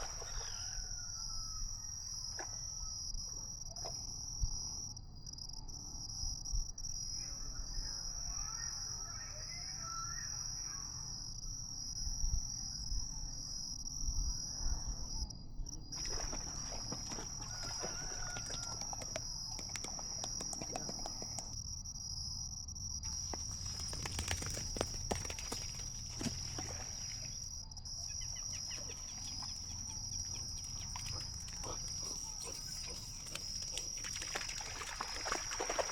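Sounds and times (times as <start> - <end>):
faint bird calls: 0.0 - 2.5, 16.0 - 21.6, 23.1 - 35.9
crickets chirring: 0.0 - 35.9.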